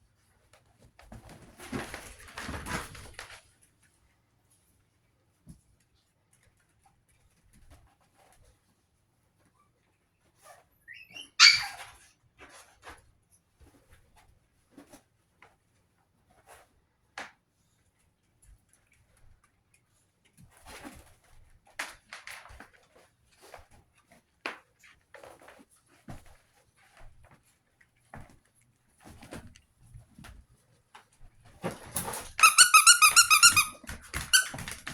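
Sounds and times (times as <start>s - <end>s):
puppies yipping: 10.9s - 12.0s
puppy yelping: 10.9s - 12.0s.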